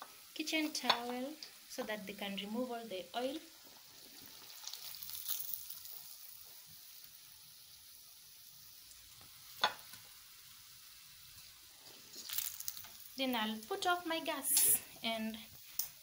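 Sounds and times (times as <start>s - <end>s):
oil sizzling: 0.0s - 16.0s.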